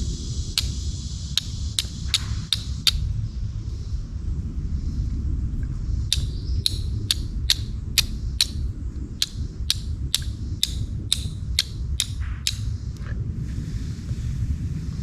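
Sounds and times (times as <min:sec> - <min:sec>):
flint striking steel clicks: 0:00.6 - 0:03.1, 0:06.1 - 0:13.0.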